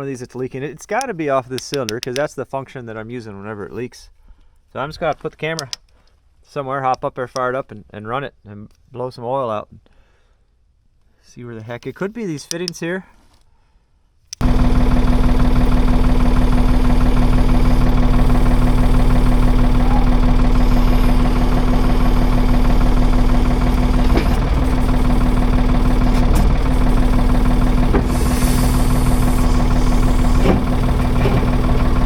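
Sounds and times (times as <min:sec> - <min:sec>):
diesel engine running: 0:14.4 - 0:32.0.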